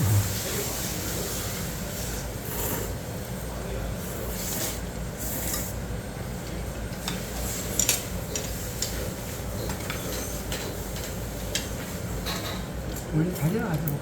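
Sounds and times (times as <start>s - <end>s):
steady low hum: 0.0s - 1.2s.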